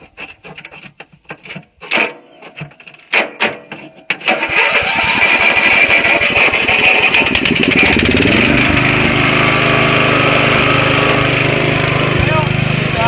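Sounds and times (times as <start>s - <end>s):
clicks and knocks: 0.0s - 4.4s
lawn mower engine putter: 0.0s - 13.0s.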